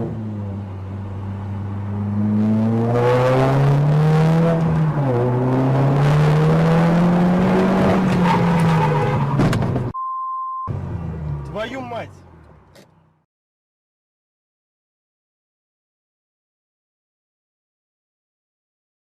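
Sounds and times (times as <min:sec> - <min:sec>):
car engine accelerating: 0:00.0 - 0:09.9, 0:10.7 - 0:13.2.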